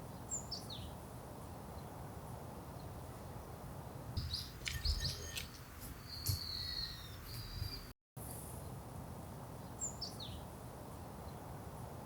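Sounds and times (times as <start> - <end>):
small birds chirping: 4.2 - 7.9.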